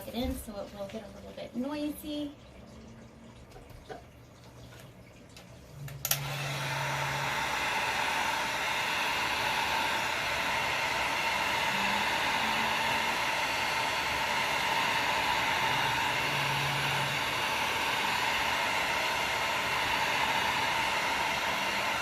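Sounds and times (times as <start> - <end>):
heat gun switch click: 6.0 - 6.3
heat gun blowing: 6.0 - 22.0.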